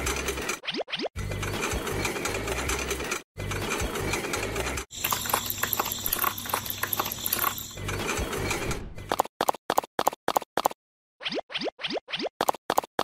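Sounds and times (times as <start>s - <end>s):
small mechanism whirring and clicking: 0.0s - 9.2s.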